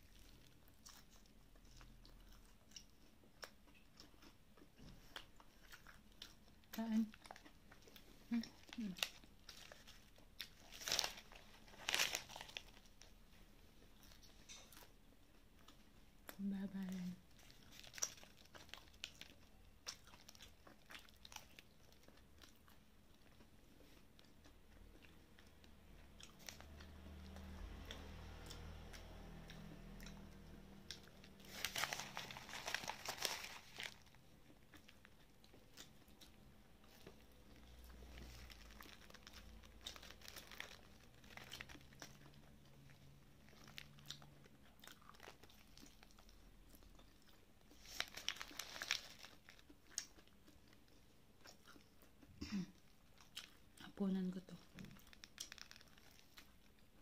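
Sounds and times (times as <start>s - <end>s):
crunching fried chicken: 0.0s - 53.8s, 54.7s - 57.0s.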